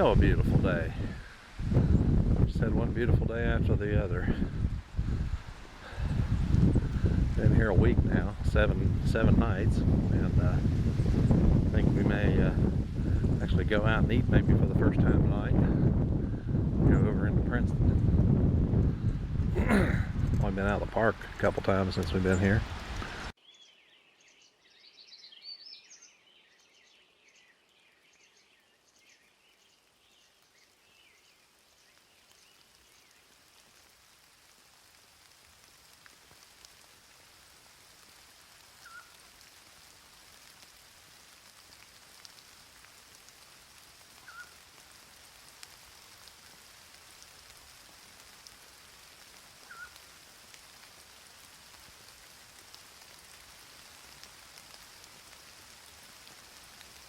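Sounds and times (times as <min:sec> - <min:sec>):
faint rain falling: 0:00.0 - 0:23.8, 0:24.6 - 0:57.0
birds chirping: 0:19.6 - 0:33.4, 0:49.6 - 0:50.0.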